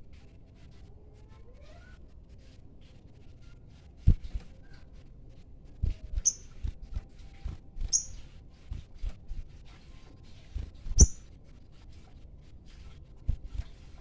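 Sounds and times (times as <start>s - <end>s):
songbird chirping: 6.2s - 6.5s, 7.9s - 8.2s, 11.0s - 11.2s.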